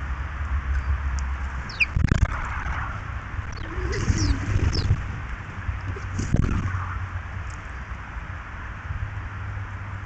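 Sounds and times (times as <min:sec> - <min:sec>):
small birds chirping: 0:00.0 - 0:02.4, 0:03.4 - 0:05.1
low rumble: 0:00.0 - 0:09.0.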